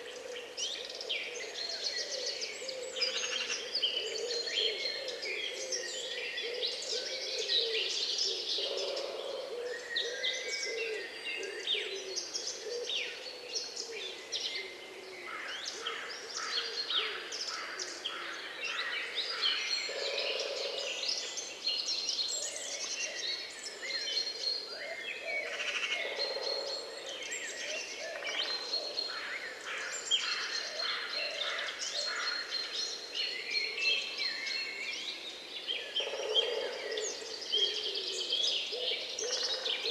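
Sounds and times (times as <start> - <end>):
songbirds chorus chirping: 0.0 - 39.9.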